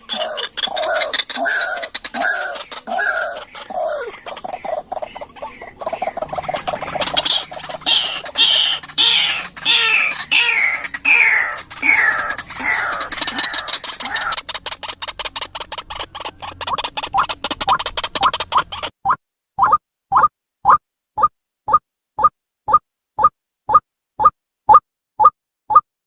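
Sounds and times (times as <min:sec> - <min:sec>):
bird harsh falling calls: 0:00.0 - 0:18.9
bird stuttering clicking chatter: 0:00.0 - 0:24.3.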